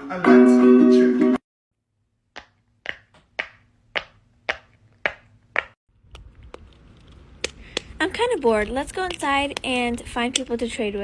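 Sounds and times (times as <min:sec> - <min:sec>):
sharp taps: 0:02.4 - 0:05.8.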